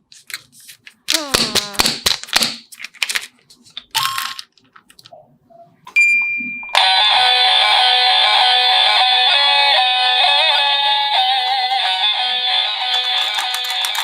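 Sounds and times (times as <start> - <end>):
electronic ding: 6.0 - 6.8.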